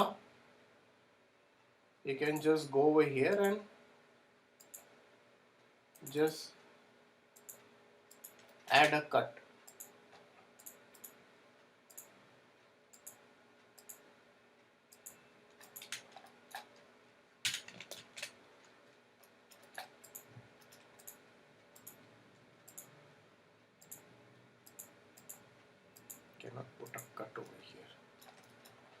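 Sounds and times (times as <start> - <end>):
mouse and keyboard clicks: 14.9 - 16.8, 22.7 - 22.9.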